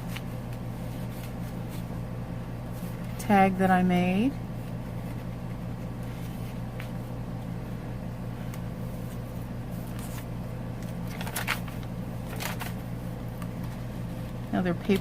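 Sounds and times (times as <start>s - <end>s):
low hum: 0.0s - 15.0s
paper rustling: 8.9s - 15.0s.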